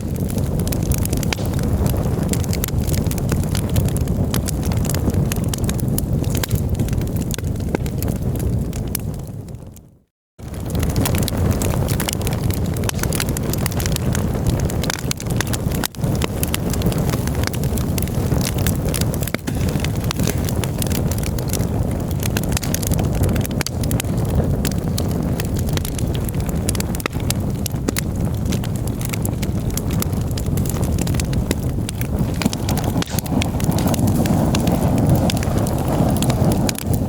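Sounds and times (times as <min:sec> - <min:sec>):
campfire crackling and snapping: 0:00.0 - 0:37.0
low rumble: 0:31.9 - 0:37.0.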